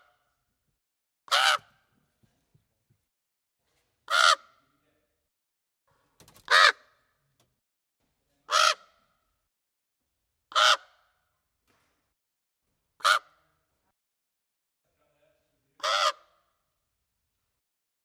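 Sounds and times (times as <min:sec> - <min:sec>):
raven cawing: 0:01.3 - 0:01.8, 0:04.1 - 0:04.6, 0:06.4 - 0:07.0, 0:08.5 - 0:09.2, 0:10.5 - 0:11.2, 0:13.0 - 0:13.4, 0:15.8 - 0:16.6.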